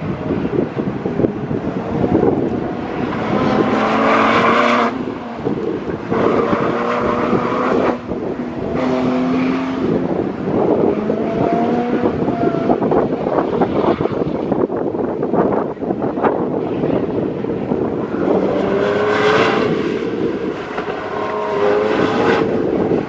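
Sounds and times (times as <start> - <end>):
sports car engine revving: 17.7 - 23.0.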